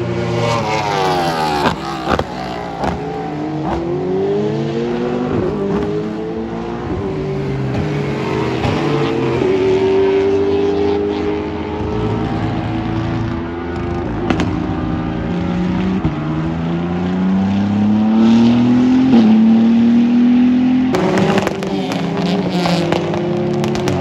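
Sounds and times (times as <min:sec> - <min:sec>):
racing car engine accelerating: 0:00.0 - 0:24.0.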